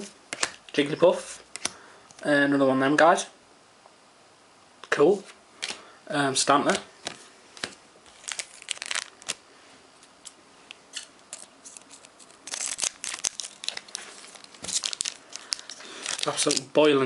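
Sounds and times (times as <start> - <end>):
trading cards rustling: 7.0 - 9.4, 11.3 - 16.8
foil wrapper tearing and crinkling: 8.1 - 9.4, 11.0 - 16.7.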